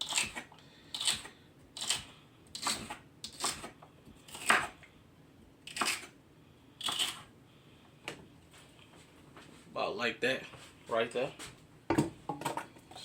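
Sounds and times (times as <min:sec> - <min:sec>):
knife chopping celery on board: 0:00.0 - 0:04.8.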